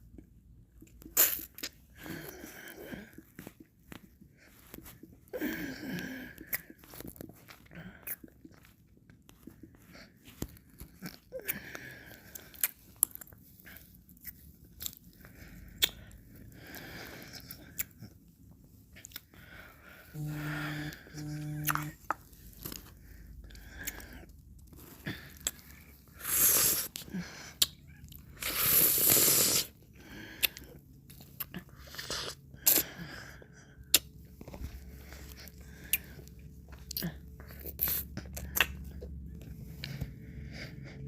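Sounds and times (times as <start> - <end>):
wet mouth clicks and smacks: 15.7 - 16.2, 33.9 - 34.1, 37.7 - 39.2.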